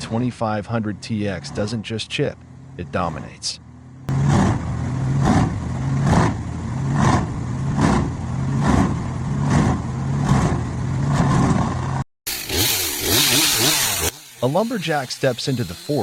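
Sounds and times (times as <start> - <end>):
engine droning: 0.0 - 16.0
wood chipper crunching log: 12.3 - 16.0.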